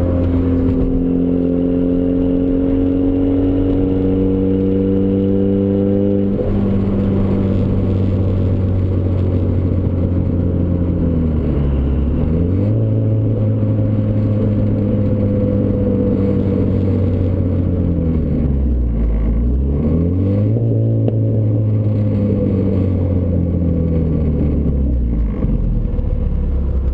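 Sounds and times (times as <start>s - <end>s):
car engine through exhaust: 0.0s - 26.9s.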